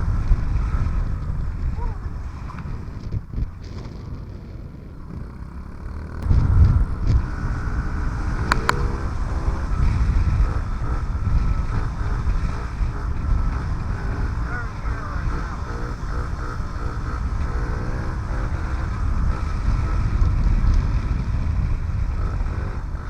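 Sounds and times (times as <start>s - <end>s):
small motorbike engine running: 0.0s - 23.0s
wind buffeting microphone: 0.0s - 23.0s
sharp clicks: 8.4s - 8.9s.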